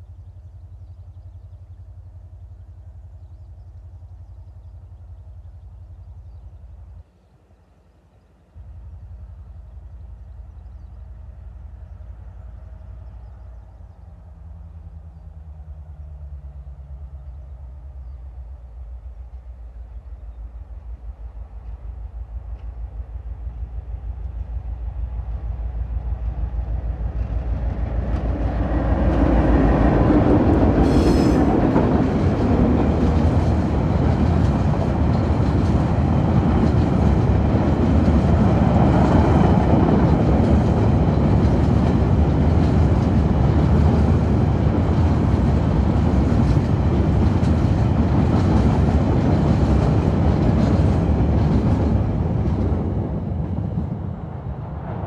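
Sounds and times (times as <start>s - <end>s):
diesel locomotive engines: 0.0s - 55.0s
train wheels clattering on rails: 26.2s - 53.9s.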